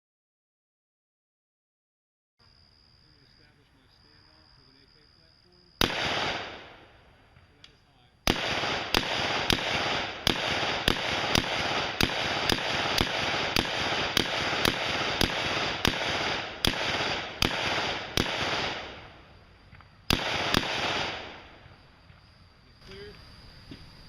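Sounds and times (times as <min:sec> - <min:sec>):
gunshots with echo: 0:05.8 - 0:06.9, 0:08.3 - 0:19.2, 0:20.1 - 0:21.6.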